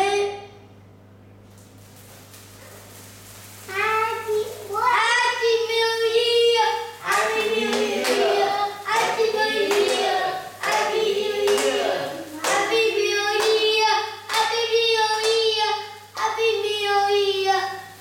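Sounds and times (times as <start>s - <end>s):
children singing: 6.2s - 15.7s
hand clapping: 7.0s - 16.5s.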